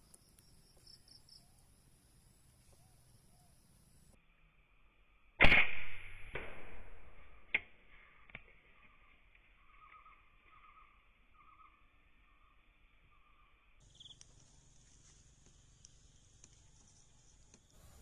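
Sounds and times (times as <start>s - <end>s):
insect chirring: 0.0s - 5.4s, 8.1s - 18.0s
air rifle shot: 5.4s - 8.0s.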